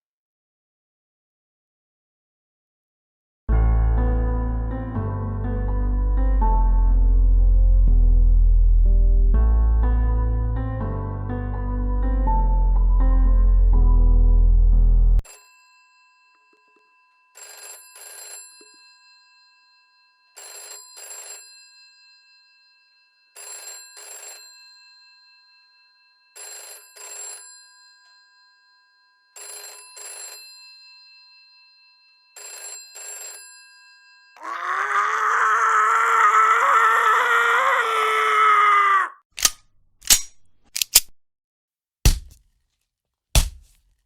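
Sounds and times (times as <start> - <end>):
telephone bell double rings: 15.2 - 34.4.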